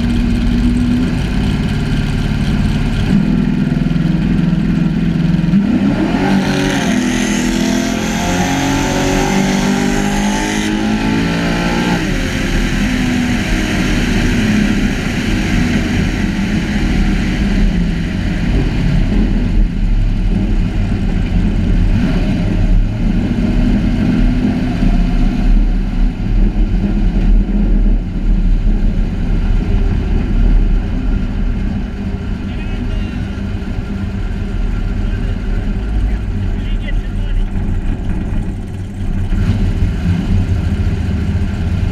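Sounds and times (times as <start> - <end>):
truck engine revving: 0.0 - 25.7.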